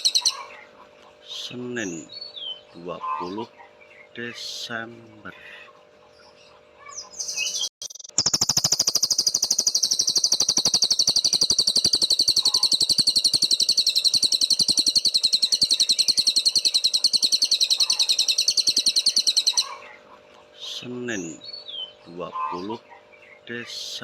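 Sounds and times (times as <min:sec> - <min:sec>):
songbird rapid trill: 0:00.0 - 0:00.6, 0:06.9 - 0:19.9.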